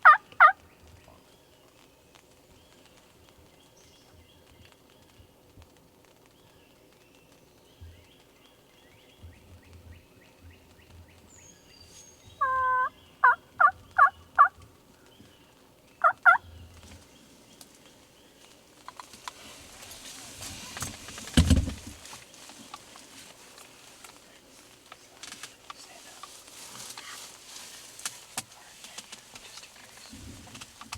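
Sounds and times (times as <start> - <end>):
turkey calling: 0.0 - 0.6, 12.4 - 14.6, 16.0 - 16.5
faint songbird chirps: 6.4 - 18.6
rustling: 13.8 - 30.9
loud thump: 21.4 - 21.9.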